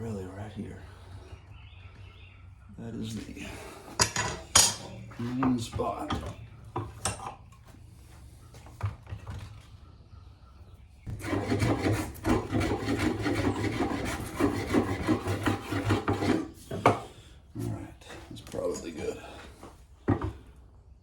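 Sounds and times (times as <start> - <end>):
tool rasping on wood: 11.1 - 17.2.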